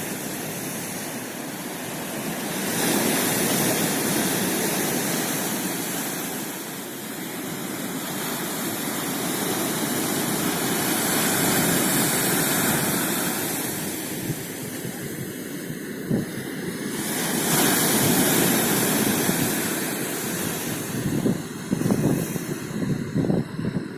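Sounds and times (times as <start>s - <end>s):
surf washing onto the shore: 0.0s - 23.9s
wind buffeting the microphone: 7.3s - 23.9s.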